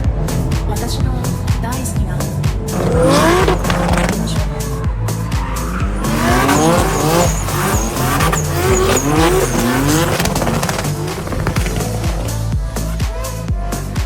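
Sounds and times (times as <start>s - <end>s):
car engines revving: 0.0s - 13.4s
music with heavy bass: 0.0s - 14.0s
tyre squeal: 0.2s - 13.0s.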